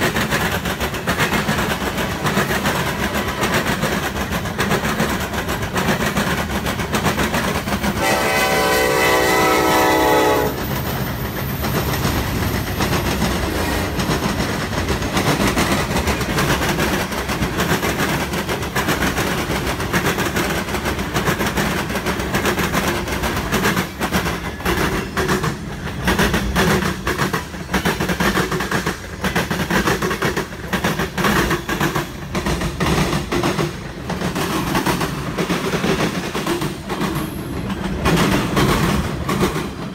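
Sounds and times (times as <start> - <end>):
train passing rumble: 0.0 - 39.9
wheels clacking over rail joints: 0.0 - 39.9
train horn blast: 8.0 - 10.6.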